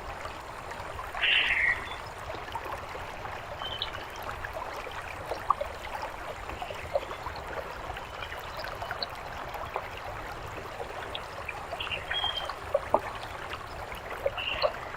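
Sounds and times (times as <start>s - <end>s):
fountain water trickling: 0.0s - 14.9s
water drips: 0.0s - 14.9s.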